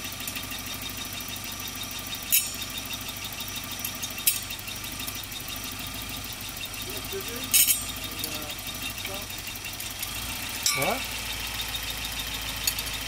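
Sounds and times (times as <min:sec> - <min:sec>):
engine idling with fast ticking: 0:00.0 - 0:13.0.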